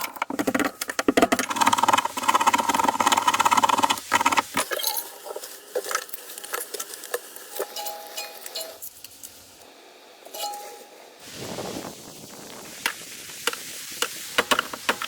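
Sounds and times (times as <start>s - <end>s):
short metallic rings: 10.3s - 10.9s.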